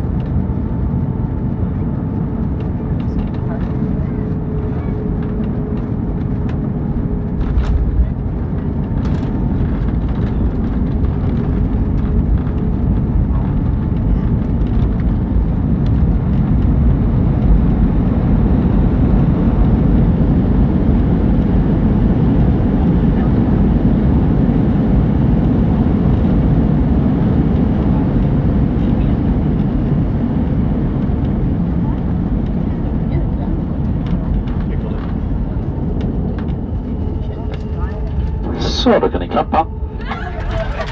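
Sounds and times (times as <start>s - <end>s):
jet engines rumbling: 0.0s - 40.9s.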